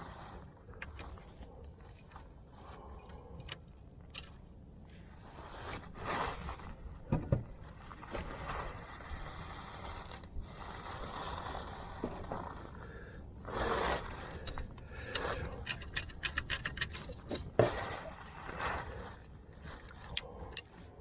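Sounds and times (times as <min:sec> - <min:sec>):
tools scraping and rustling: 0:14.0 - 0:21.0.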